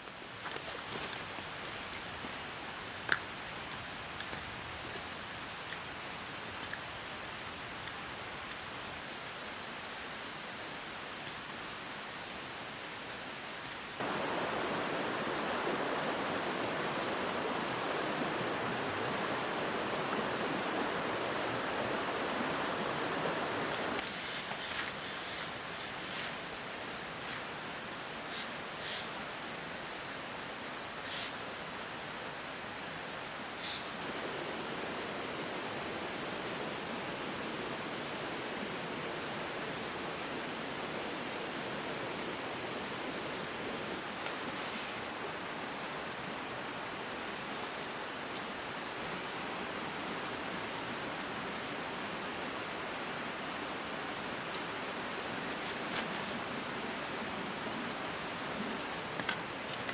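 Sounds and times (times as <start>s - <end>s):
rushing water: 0.0s - 59.9s
steady rain: 0.0s - 59.9s.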